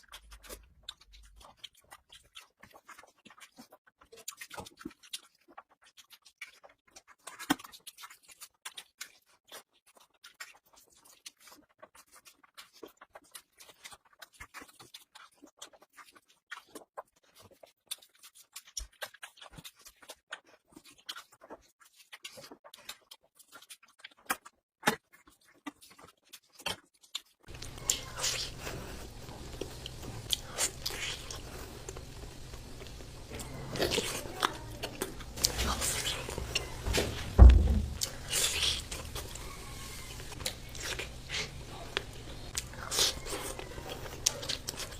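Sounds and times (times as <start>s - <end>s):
person chewing: 0.0s - 44.9s.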